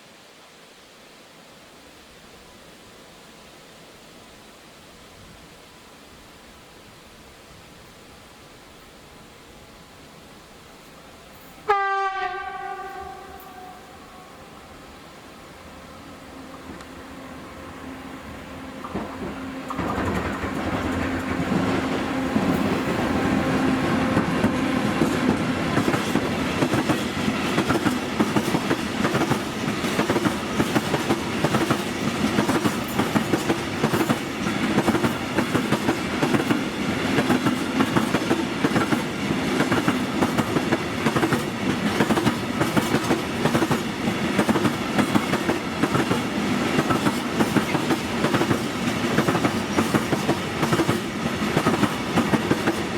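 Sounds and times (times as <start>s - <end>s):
train wheels clattering over rail joints: 18.8s - 22.7s.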